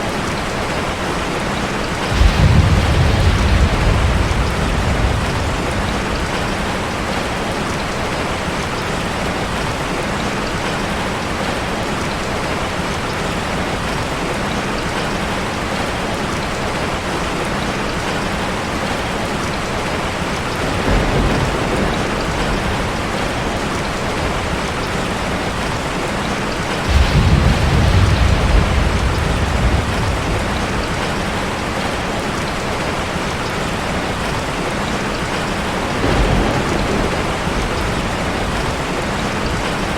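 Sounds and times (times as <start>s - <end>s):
heavy rain on a car: 0.0s - 39.9s
thunder rolling: 2.0s - 7.6s, 20.3s - 25.9s, 26.7s - 32.6s, 35.3s - 39.9s.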